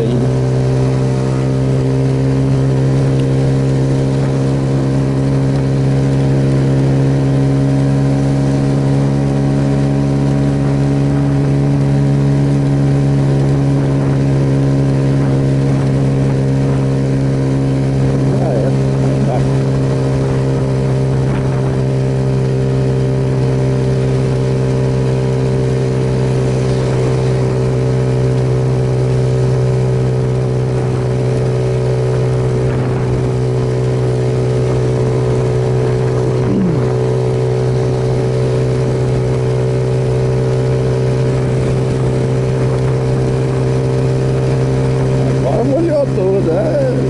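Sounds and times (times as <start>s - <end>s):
motorcycle engine cruising: 0.0s - 47.0s
wind noise: 20.2s - 22.0s.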